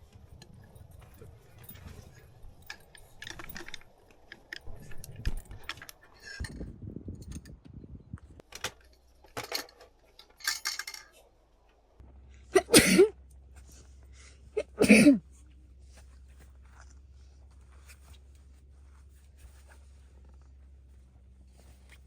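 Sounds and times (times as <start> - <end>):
small metal items clinking: 0.3 - 6.6, 8.7 - 11.2.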